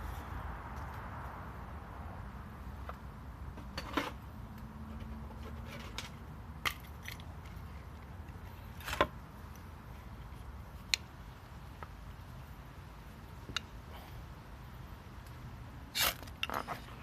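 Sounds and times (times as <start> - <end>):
metallic clicks and scrapes: 4.9 - 9.2, 15.9 - 17.0.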